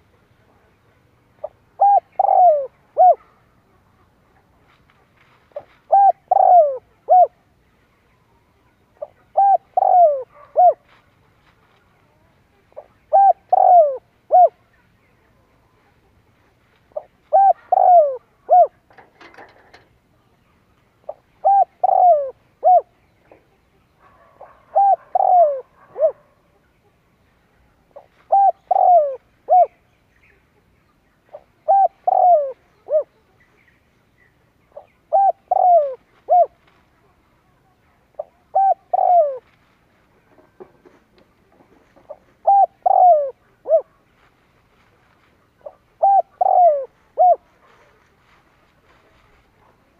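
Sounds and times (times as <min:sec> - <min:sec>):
dove cooing: 0:01.4 - 0:03.4, 0:05.6 - 0:07.5, 0:09.0 - 0:10.8, 0:12.8 - 0:14.6, 0:16.9 - 0:19.9, 0:21.0 - 0:23.0, 0:24.0 - 0:26.6, 0:27.9 - 0:29.8, 0:31.3 - 0:33.2, 0:34.7 - 0:36.6, 0:38.1 - 0:39.5, 0:40.2 - 0:44.0, 0:45.4 - 0:48.0.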